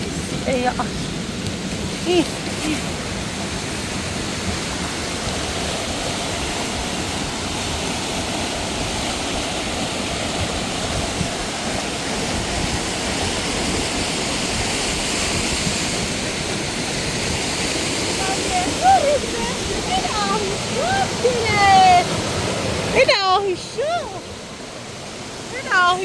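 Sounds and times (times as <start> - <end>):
rushing mountain water: 0.0 - 26.0.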